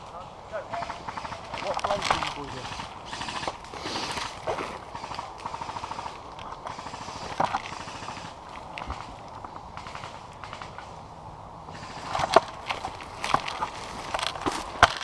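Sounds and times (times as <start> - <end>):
airsoft guns firing: 0.7 - 10.9.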